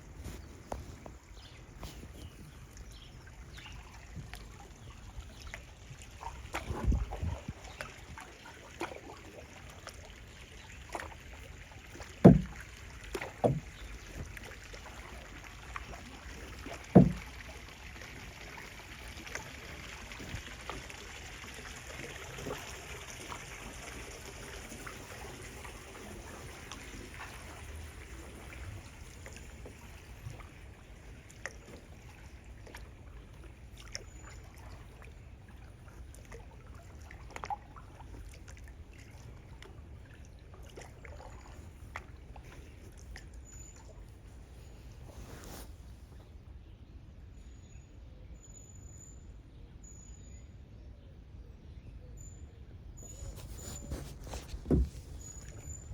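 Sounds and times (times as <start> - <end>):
water moving along hull: 0.0 - 47.9, 52.7 - 55.9
kayak paddle in water: 0.0 - 55.9
sharp knocks: 12.2 - 12.6, 17.0 - 17.3.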